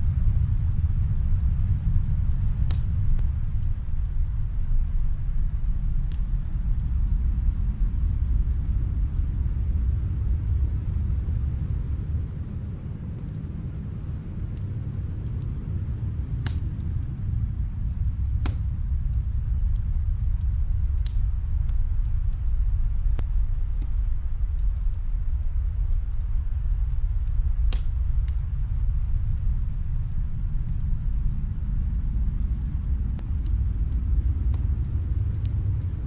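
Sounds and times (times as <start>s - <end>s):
fireplace low rumble: 0.0s - 36.0s
burning wood popping: 2.5s - 4.7s, 14.4s - 28.5s.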